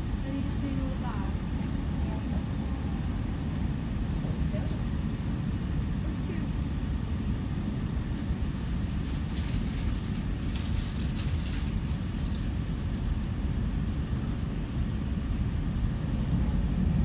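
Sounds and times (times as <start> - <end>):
train wheels rumbling on track: 8.1 - 17.0.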